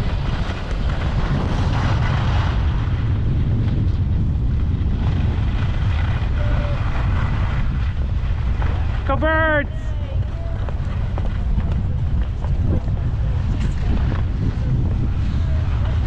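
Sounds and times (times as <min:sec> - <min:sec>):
skis sliding across snow: 0:00.0 - 0:16.0
wind rumbling on microphone: 0:00.0 - 0:16.0.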